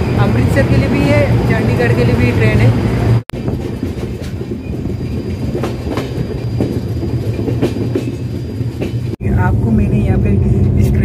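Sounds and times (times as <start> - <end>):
train wheels rumbling on track: 0.0 - 11.0
wheels clicking over rail joints: 3.3 - 9.2.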